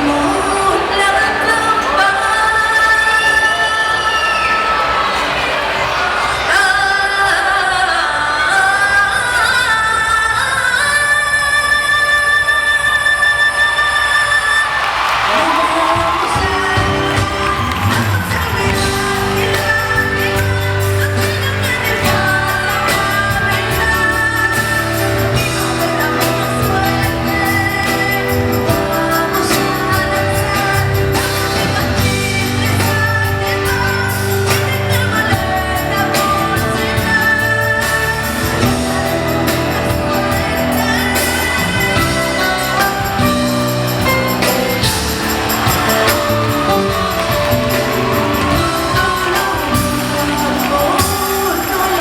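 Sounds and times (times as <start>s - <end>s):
woman singing: 0.0s - 4.5s, 6.5s - 52.0s
band with heavy bass: 15.2s - 52.0s.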